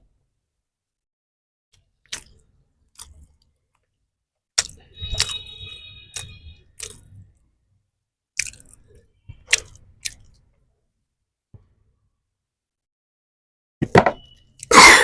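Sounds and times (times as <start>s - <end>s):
crisp chewing and biting: 2.0s - 3.5s, 4.6s - 5.4s, 6.1s - 7.2s, 8.4s - 10.4s.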